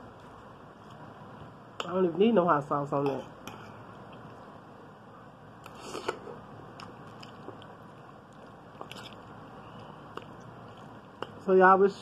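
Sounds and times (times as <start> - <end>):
person chewing noodles: 5.6 - 11.4.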